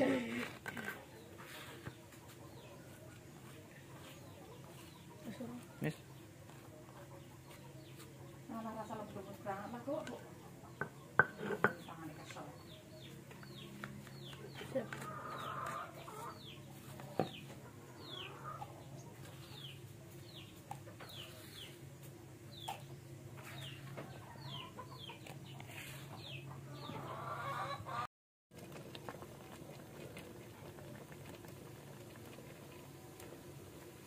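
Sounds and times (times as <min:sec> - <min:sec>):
chickens clucking: 0:00.0 - 0:28.1
chicks peeping: 0:12.6 - 0:21.8, 0:22.5 - 0:28.0.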